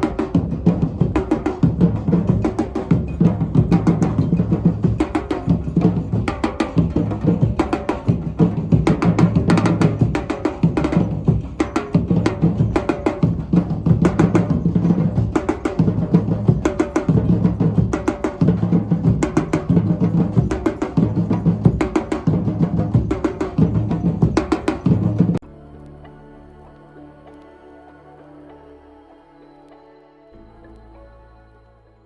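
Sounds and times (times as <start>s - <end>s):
fast hand percussion: 0.0s - 25.4s.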